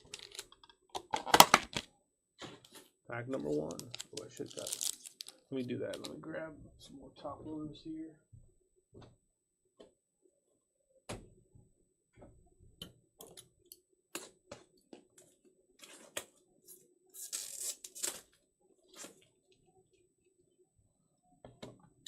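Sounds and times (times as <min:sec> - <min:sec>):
card packs rustling: 0:00.0 - 0:01.8, 0:03.4 - 0:06.1.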